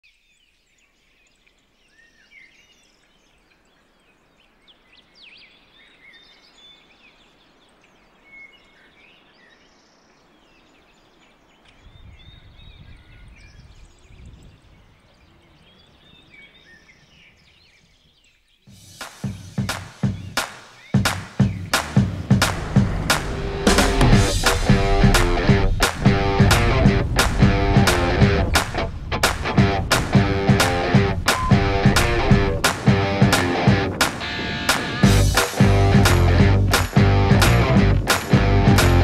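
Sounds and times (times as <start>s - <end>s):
small birds chirping and trilling: 0.0s - 22.8s
faint outdoor hiss: 0.0s - 39.0s
low rumble: 22.1s - 33.9s.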